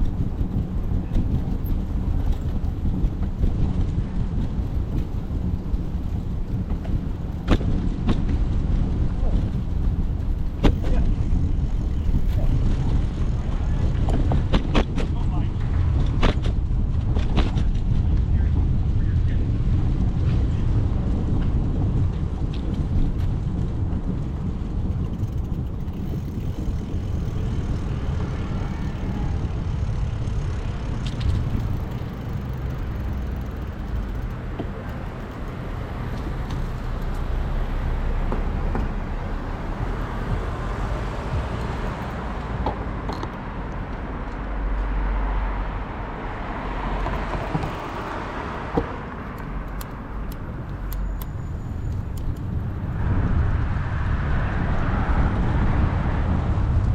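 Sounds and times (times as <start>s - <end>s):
city traffic: 0.0s - 56.9s
wind rumble on microphone: 0.0s - 56.9s
vehicle passing: 24.4s - 56.9s.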